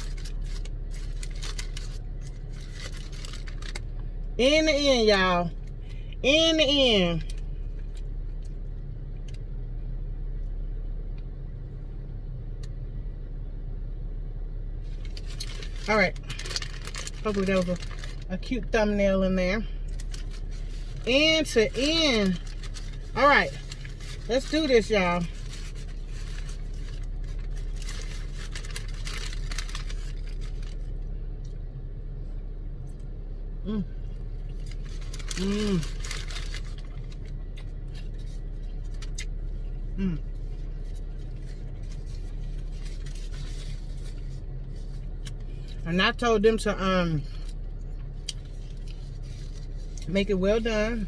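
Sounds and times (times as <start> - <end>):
paper wrapper crinkling: 0.0 - 4.0, 14.8 - 18.6, 19.8 - 31.1, 34.5 - 45.8, 47.4 - 51.0
car engine idling: 0.0 - 51.0
steady low hum: 0.0 - 51.0.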